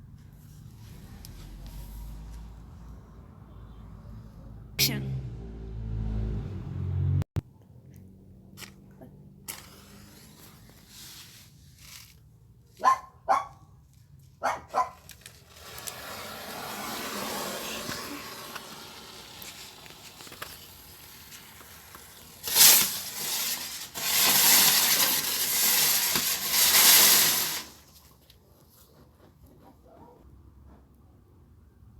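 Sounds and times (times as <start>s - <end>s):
dog barking: 12.8s - 13.7s, 14.4s - 15.0s
loud rushing hiss: 15.6s - 27.8s.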